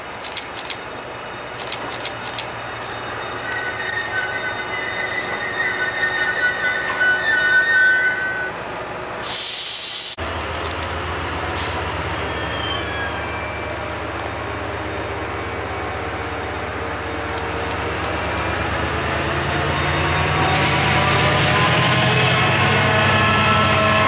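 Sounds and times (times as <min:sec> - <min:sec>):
train wheel squeal: 0:00.0 - 0:09.7, 0:10.6 - 0:24.0
low hum of standing train: 0:00.0 - 0:24.0
loud hiss: 0:09.1 - 0:10.2.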